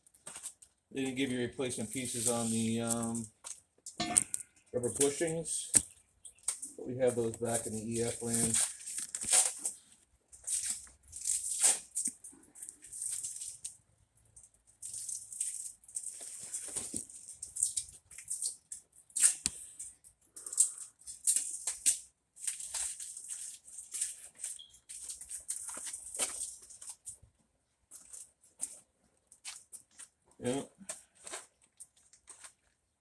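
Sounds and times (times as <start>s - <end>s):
packaging rustling: 7.3s - 9.8s.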